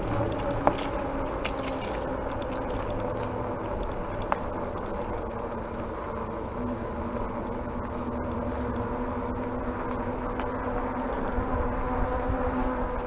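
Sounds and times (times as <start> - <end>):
tires and hub motor humming: 0.0 - 13.0
wind rushing on microphone: 10.9 - 13.0.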